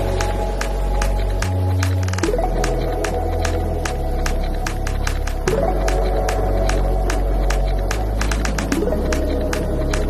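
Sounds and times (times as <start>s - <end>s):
background music with beat: 0.0s - 10.0s.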